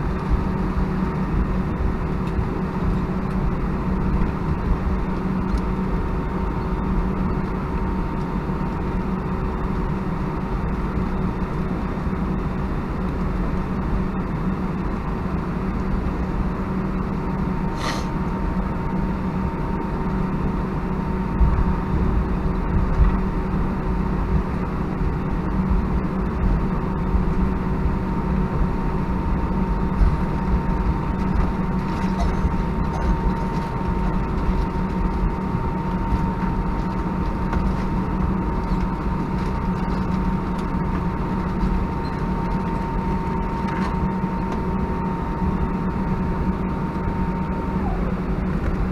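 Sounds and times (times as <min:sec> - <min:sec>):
jet engines idling: 0:00.0 - 0:48.9.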